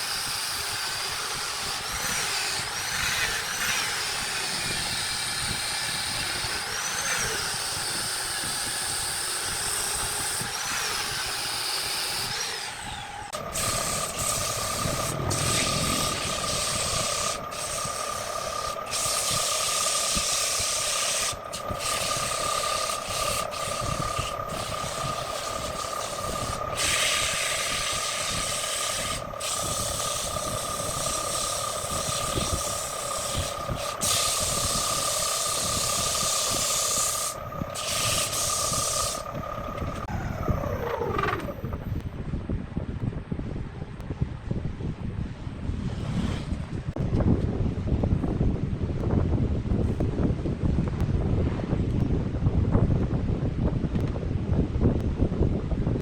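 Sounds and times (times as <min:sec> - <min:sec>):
tool rasping on spinning wood: 0:00.0 - 0:41.9
wood lathe motor whine: 0:00.0 - 0:42.0.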